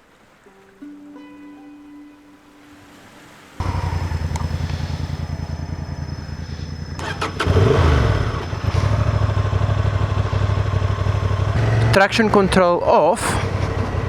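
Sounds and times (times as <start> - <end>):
clicks: 3.6 - 9.7
throttle blip: 3.6 - 12.0
motorcycle engine idling: 3.6 - 14.0.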